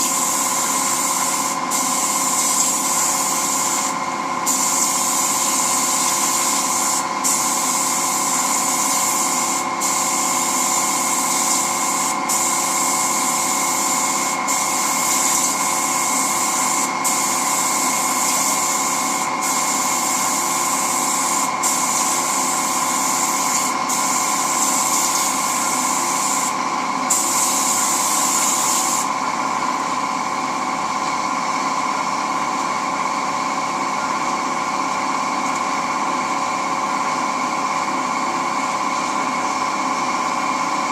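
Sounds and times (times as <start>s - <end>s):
spray gun hissing: 0.0s - 29.1s
air compressor humming: 0.0s - 40.9s.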